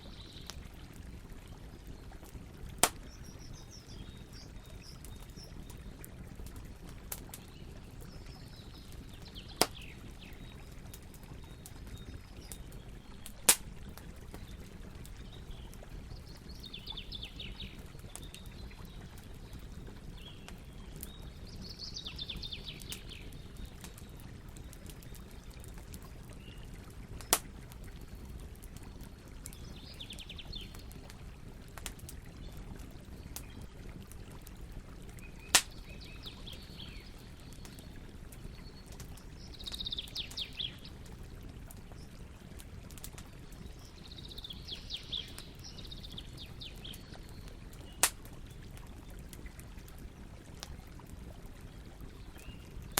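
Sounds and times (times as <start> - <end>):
campfire burning: 0.0 - 52.9
bird singing trilled phrases: 3.0 - 5.9, 35.2 - 37.8, 39.4 - 40.9, 43.7 - 48.0.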